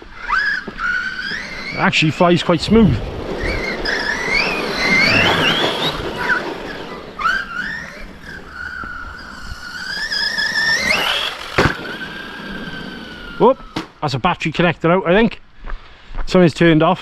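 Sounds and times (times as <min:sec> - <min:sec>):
electric motor whining: 0:03.3 - 0:14.0.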